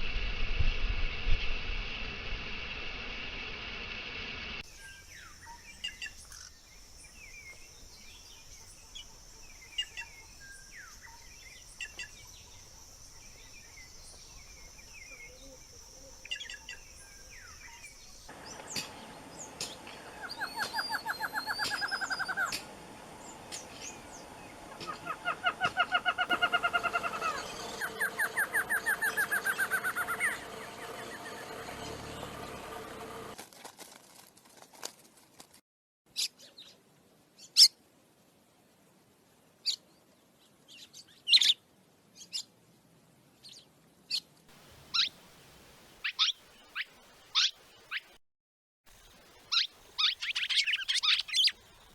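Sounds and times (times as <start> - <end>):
bird chirps: 4.6 - 32.6, 46.0 - 48.2, 49.0 - 51.9
bird song with fast trills: 4.6 - 33.3, 46.0 - 48.2, 49.0 - 51.9
steady high hiss: 44.5 - 48.0, 48.9 - 51.9.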